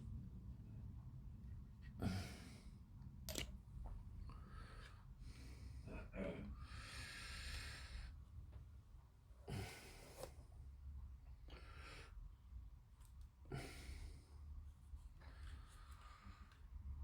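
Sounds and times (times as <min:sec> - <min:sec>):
low room hum: 0:00.0 - 0:17.0
soft breathing: 0:04.2 - 0:08.4, 0:13.5 - 0:17.0.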